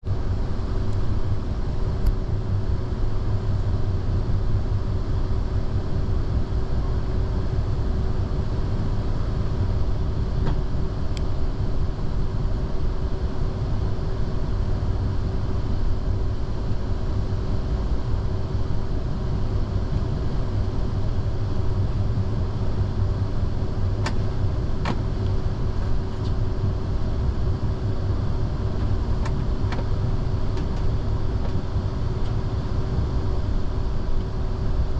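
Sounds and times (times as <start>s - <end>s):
steady hum: 0.0s - 34.9s
train rumbling: 22.9s - 34.2s.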